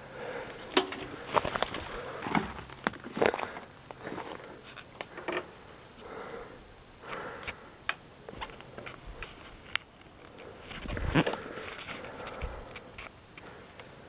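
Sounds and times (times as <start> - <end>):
footsteps in leaf litter: 0.5 - 4.5
twigs snapping: 0.5 - 5.2.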